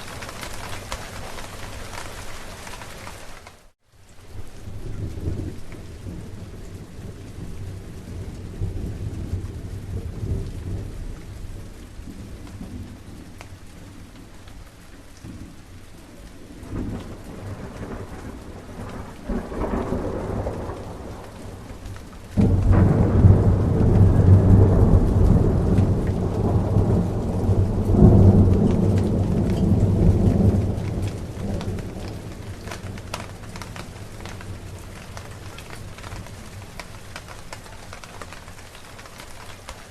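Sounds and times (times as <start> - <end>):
steady rain: 0.0 - 39.9
rolling thunder: 16.5 - 37.0
loud thunder clap: 16.7 - 36.8.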